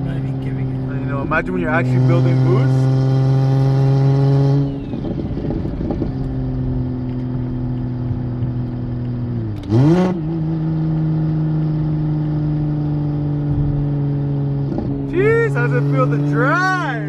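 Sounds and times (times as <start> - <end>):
car engine running and revving: 0.0 - 17.0.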